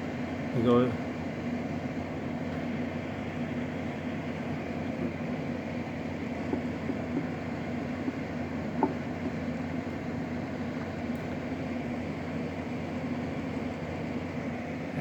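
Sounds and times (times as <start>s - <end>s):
air conditioner running: 0.0s - 15.0s.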